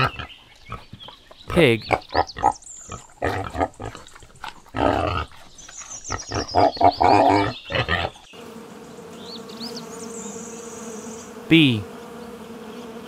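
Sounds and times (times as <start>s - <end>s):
pig grunting: 0.0s - 8.3s
bee buzzing: 1.9s - 13.0s.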